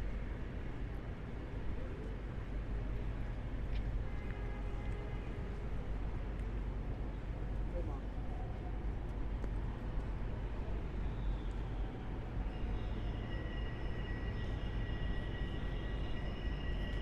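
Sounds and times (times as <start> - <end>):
vehicle rumbling on street: 0.0 - 17.0
high-pitched multi-tone whine: 12.4 - 17.0.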